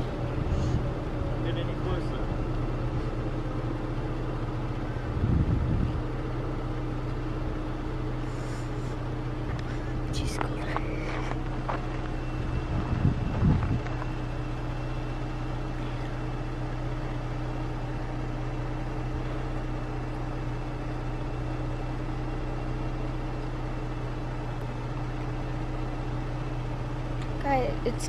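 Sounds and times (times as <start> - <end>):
vehicle engine idling: 0.0 - 28.0
low thumps: 9.5 - 14.1.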